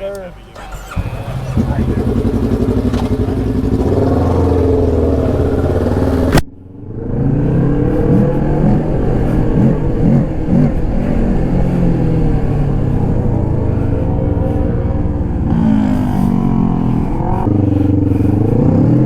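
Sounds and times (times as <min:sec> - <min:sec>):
motorcycle throttle blips: 0:00.0 - 0:06.4
motorcycle engine running: 0:00.0 - 0:19.0.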